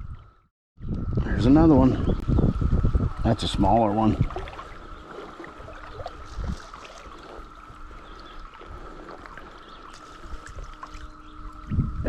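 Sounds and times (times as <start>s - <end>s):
wind rumble on microphone: 0.0s - 12.0s
running stream water: 2.8s - 12.0s.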